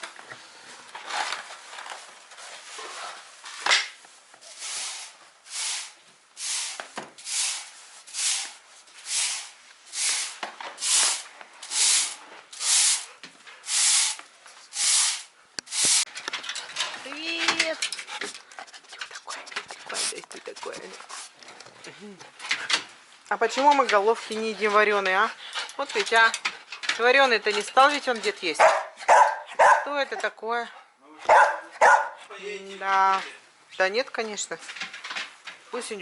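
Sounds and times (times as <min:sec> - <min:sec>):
broom sweeping: 0:04.4 - 0:16.1.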